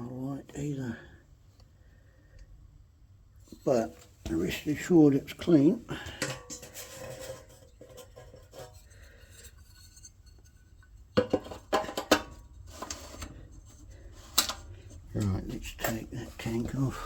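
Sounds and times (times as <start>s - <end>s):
metal tools clinking and rattling: 6.1s - 8.8s.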